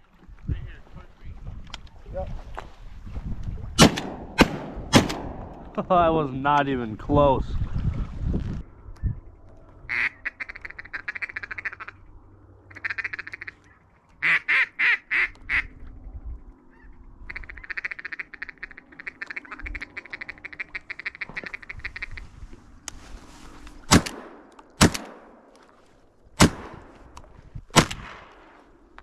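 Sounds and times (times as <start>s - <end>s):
duck call chattering clucks: 9.9s - 12.0s, 12.7s - 15.7s, 16.7s - 22.2s
duck call loud quacks: 9.9s - 12.0s, 12.7s - 13.6s, 14.2s - 15.7s, 16.8s - 22.2s.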